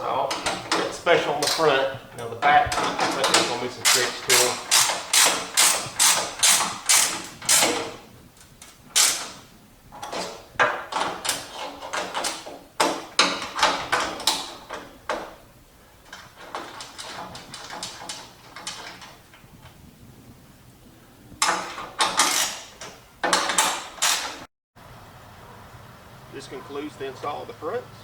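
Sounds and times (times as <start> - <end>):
hand ratchet clicking: 2.2 - 7.9, 8.6 - 9.4, 21.4 - 24.4.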